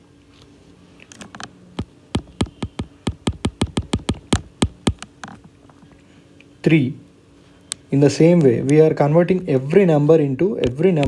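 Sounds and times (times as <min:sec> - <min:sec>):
sharp clicks: 0:01.8 - 0:05.4.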